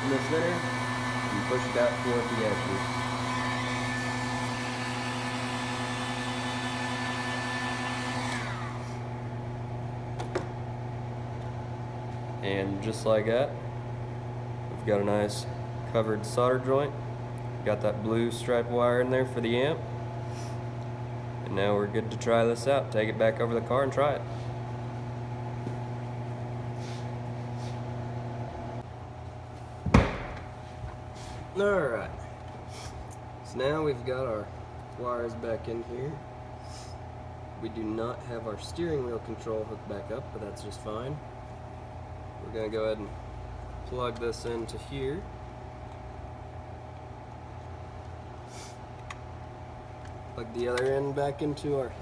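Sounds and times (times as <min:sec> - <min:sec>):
heat gun motor whine: 0:00.0 - 0:09.3
low machine hum: 0:00.0 - 0:52.0
sharp loud knock: 0:29.9 - 0:30.5.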